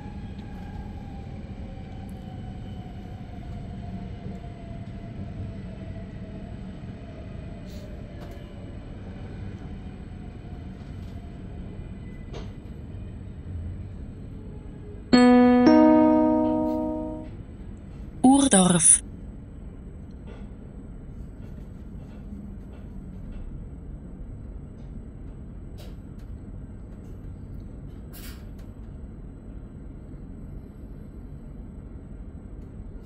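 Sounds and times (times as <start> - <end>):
two-note announcement chime: 15.2 - 17.3.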